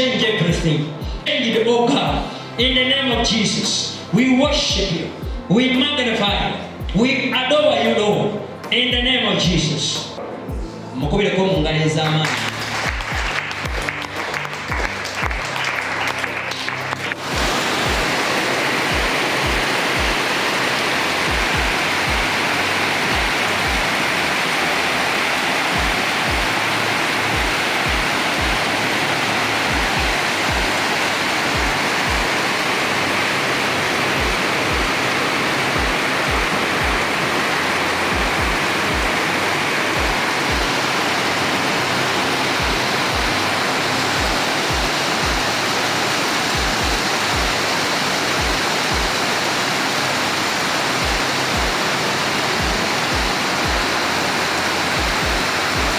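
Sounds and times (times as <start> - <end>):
heavy rain falling: 12.2 - 55.9.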